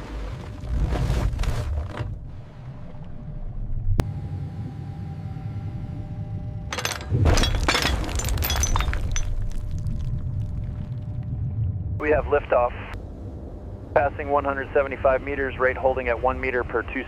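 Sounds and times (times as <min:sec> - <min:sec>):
hull cracking and crashing: 0:07.0 - 0:11.5.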